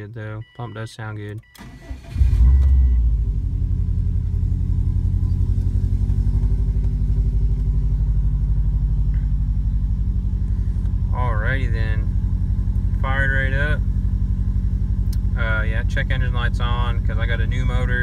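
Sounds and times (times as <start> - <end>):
car engine idling: 1.5 - 18.0.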